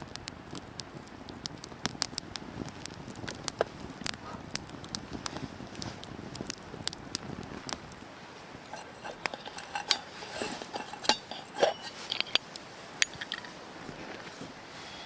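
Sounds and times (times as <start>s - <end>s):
campfire crackling: 0.0s - 15.0s
metal clinks and knocks: 8.7s - 13.6s.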